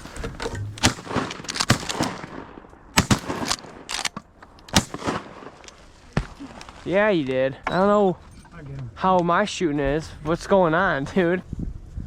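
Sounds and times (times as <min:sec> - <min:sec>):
shotgun blasts: 0:00.6 - 0:06.4.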